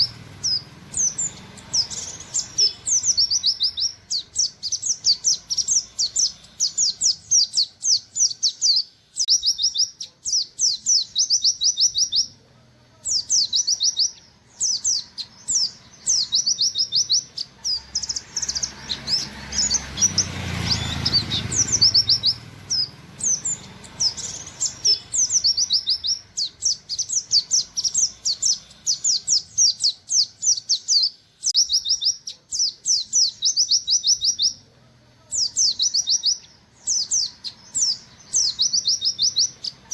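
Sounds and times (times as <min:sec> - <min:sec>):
bird singing high wit notes: 0:00.0 - 0:12.4.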